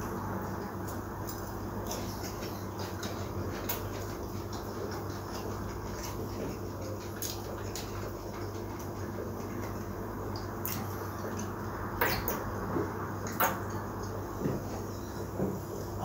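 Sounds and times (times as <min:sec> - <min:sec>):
person chewing crispy bread: 0:00.1 - 0:11.7.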